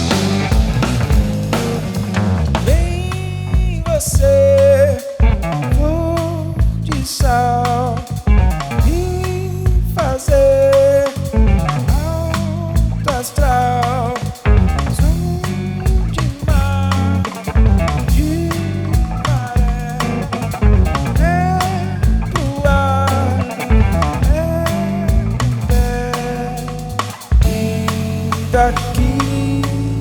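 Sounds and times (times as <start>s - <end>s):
drum kit: 0.0s - 30.0s
acoustic guitar: 10.6s - 30.0s.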